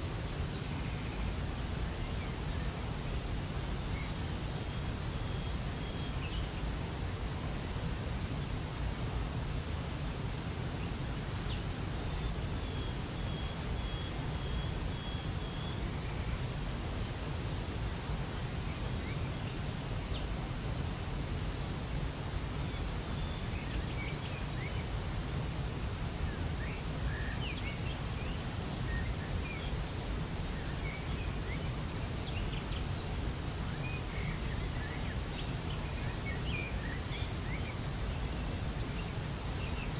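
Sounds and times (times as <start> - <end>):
small birds chirping: 10.4 - 39.9.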